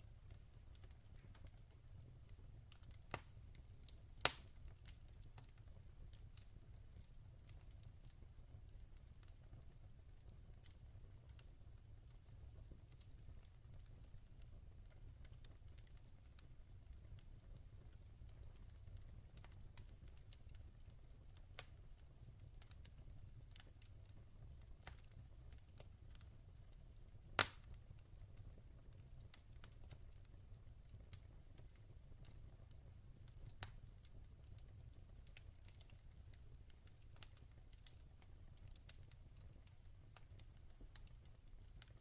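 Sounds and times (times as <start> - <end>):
log fire crackling: 0.0 - 42.0.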